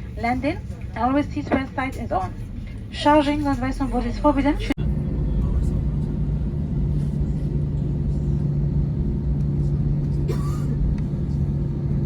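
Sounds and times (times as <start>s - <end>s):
airliner cabin rumble and hum: 0.0s - 12.0s.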